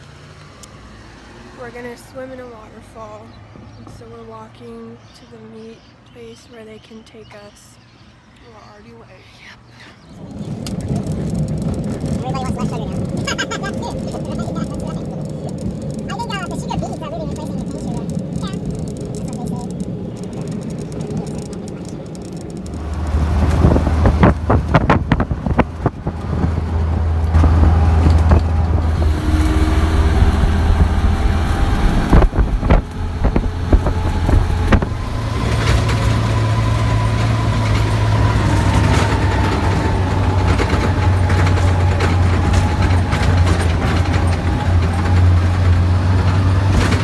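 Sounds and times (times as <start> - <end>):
vehicle engine droning: 0.0 - 8.2, 9.9 - 47.0
sharp knocks and rattles: 10.1 - 47.0.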